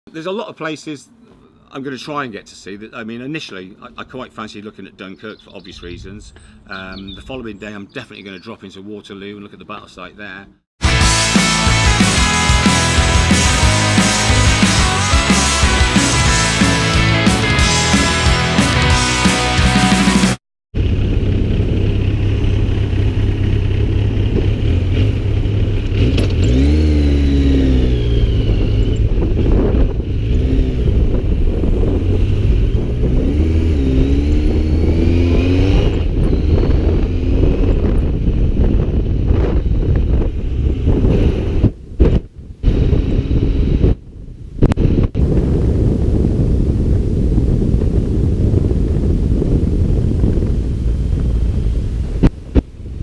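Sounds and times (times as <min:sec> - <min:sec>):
wind rumble on microphone: 0:05.6 - 0:07.7, 0:20.8 - 0:53.0
motorcycle engine accelerating: 0:10.8 - 0:44.0, 0:44.6 - 0:53.0.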